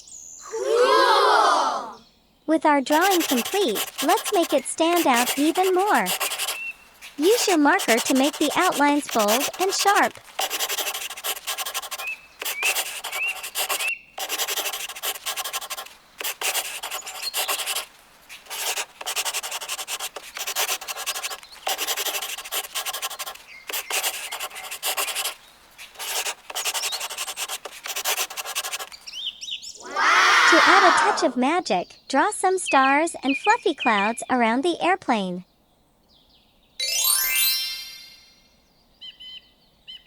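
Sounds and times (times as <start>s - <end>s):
felt-tip marker scratching paper: 2.8s - 29.0s, 30.6s - 31.3s.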